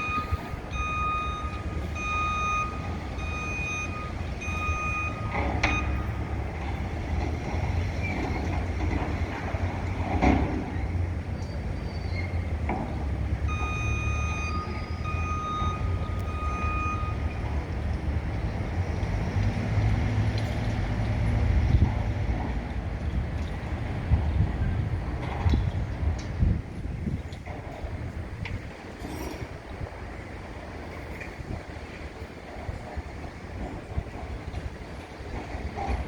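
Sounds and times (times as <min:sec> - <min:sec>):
backup alarm beeping: 0:00.0 - 0:06.5, 0:13.5 - 0:17.6
heavy machinery rumble: 0:00.0 - 0:36.0.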